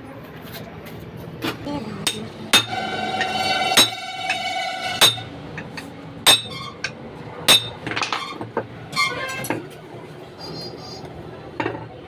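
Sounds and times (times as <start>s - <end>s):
hammer striking steel: 2.0s - 8.2s.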